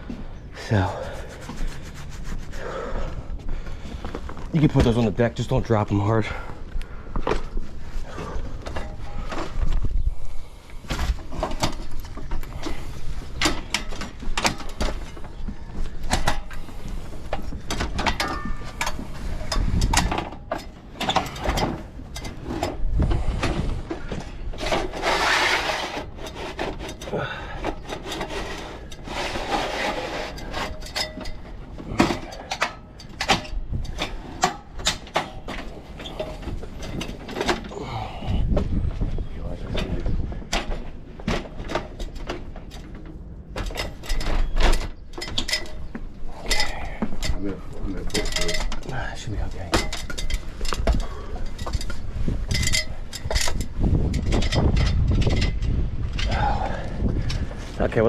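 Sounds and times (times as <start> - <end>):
scraping and rubbing: 0.6 - 3.0, 10.8 - 32.4.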